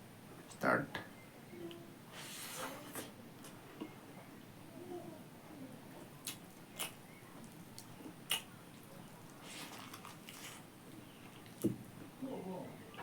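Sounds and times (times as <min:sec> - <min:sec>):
mouth clicks and smacks: 0:06.2 - 0:09.4
person chewing: 0:06.2 - 0:11.6.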